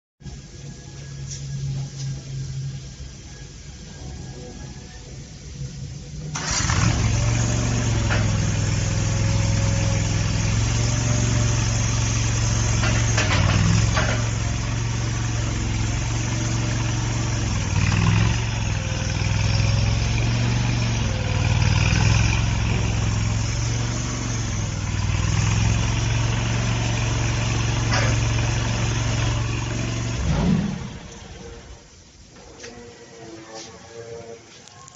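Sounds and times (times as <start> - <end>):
small diesel engine running: 6.1 - 32.0.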